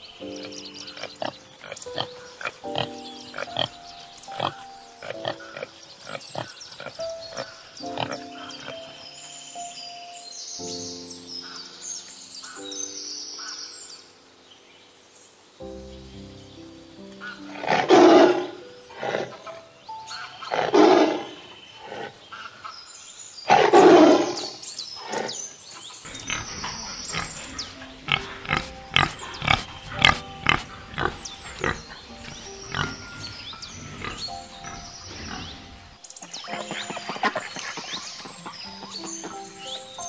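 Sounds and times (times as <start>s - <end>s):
background music: 0.0s - 22.0s, 26.0s - 40.0s
large animal rough calls: 17.4s - 19.6s, 20.5s - 22.2s, 26.0s - 38.5s
sharp rhythmic clicks: 27.1s - 34.5s.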